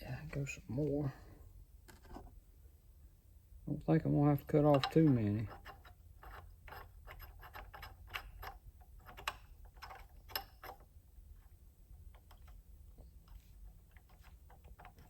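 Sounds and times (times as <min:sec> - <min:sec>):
metallic clicks and scrapes: 0:04.7 - 0:10.9.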